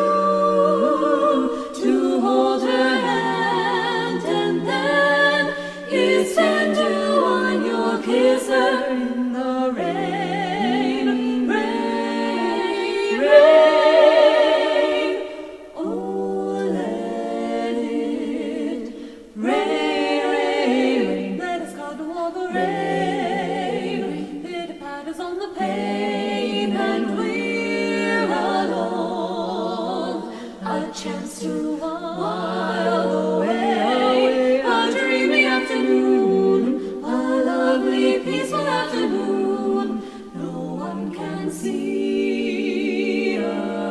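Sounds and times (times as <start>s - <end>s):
women singing a cappella harmony: 0.0s - 43.9s
singers breathing: 1.5s - 1.8s, 5.5s - 5.9s, 18.8s - 19.4s, 30.2s - 30.6s, 36.7s - 37.0s, 40.0s - 40.4s.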